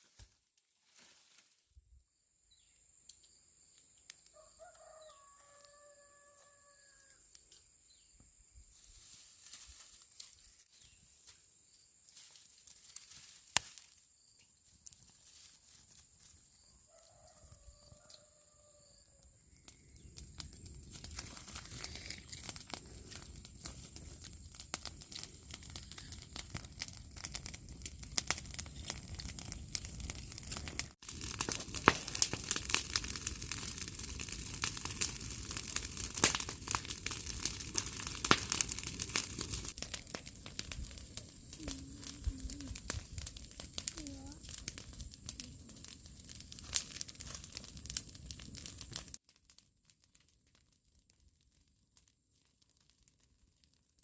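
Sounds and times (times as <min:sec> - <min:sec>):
rooster crowing: 0:04.3 - 0:07.3, 0:16.6 - 0:19.4
rustling and crackling: 0:08.7 - 0:16.5, 0:20.4 - 0:49.2.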